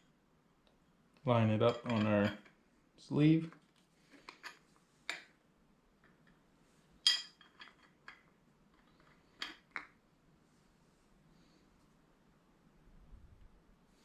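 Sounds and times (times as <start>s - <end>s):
light metallic clinks and taps: 1.6s - 2.6s, 7.0s - 9.9s.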